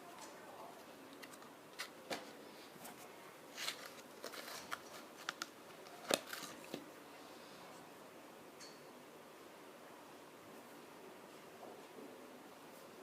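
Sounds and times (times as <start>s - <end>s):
packaging clicks and rustles: 3.5s - 6.8s.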